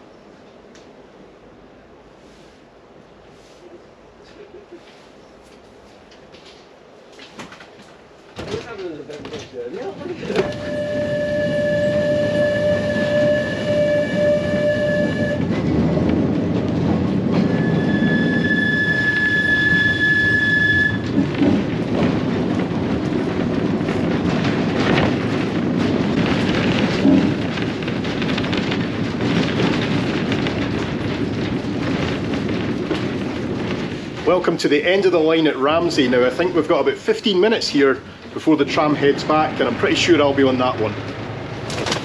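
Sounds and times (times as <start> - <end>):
tram rumbling on track: 0.0 - 42.0
long high whine: 10.2 - 21.4.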